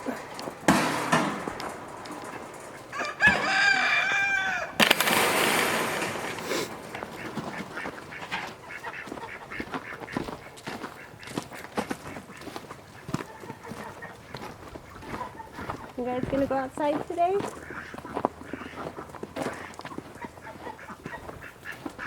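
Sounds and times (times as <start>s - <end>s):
rooster crowing: 2.9s - 5.2s.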